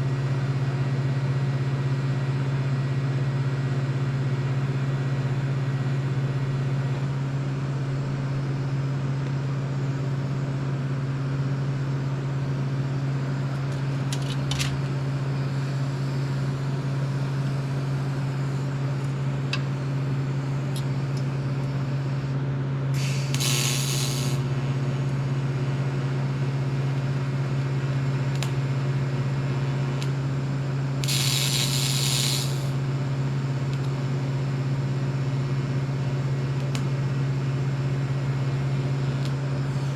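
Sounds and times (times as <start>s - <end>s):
low machine hum: 0.0s - 39.9s
short hisses: 23.0s - 24.4s, 31.0s - 32.7s.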